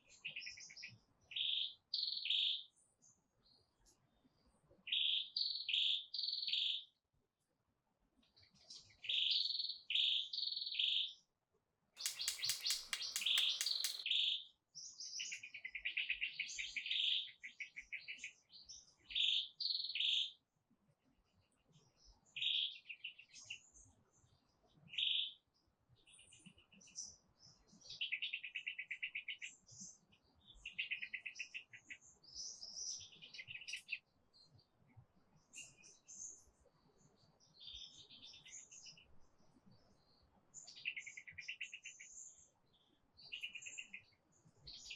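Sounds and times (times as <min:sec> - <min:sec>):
buzzy bird rattle: 0:12.0 - 0:14.0
songbirds chirping and singing: 0:12.0 - 0:14.0.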